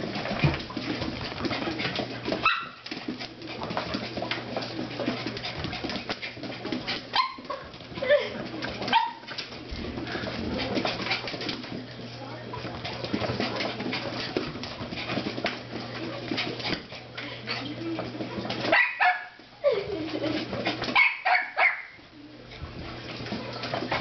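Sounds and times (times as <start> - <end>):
dog yelping: 21.0 - 22.0.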